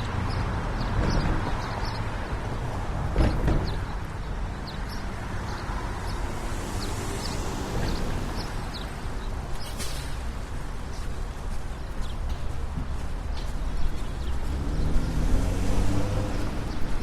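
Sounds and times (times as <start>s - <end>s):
road traffic noise: 0.0s - 17.0s
quick footsteps on pavement: 7.2s - 15.2s.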